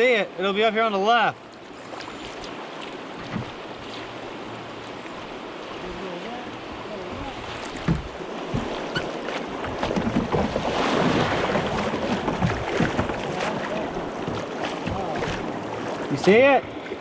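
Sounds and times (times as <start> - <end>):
rushing river water: 0.0 - 17.0
paddle splashes: 1.4 - 17.0
low knocks: 7.8 - 10.7.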